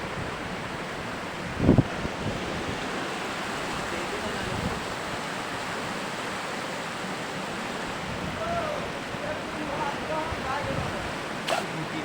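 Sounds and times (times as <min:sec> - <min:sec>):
floodwater rushing roar: 0:00.0 - 0:12.0.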